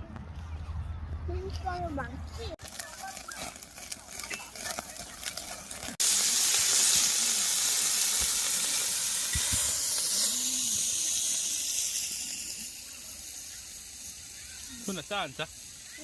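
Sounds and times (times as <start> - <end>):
food sizzling on a grill pan: 6.0 - 16.0.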